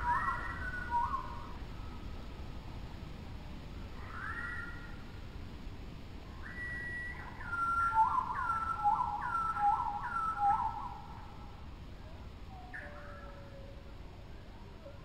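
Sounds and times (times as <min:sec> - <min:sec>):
faint steady hiss: 0:00.0 - 0:15.0
bird whistling slurred notes: 0:06.4 - 0:10.9.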